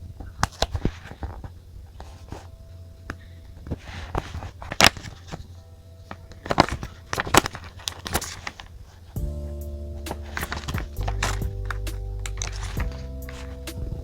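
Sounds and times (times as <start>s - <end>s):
steady low hum: 9.2s - 14.0s.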